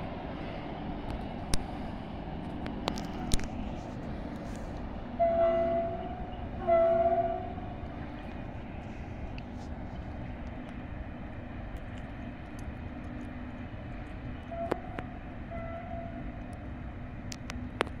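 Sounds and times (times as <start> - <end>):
train rumbling: 0.0 - 18.0
faint train horn notes: 3.2 - 10.0, 14.3 - 16.6.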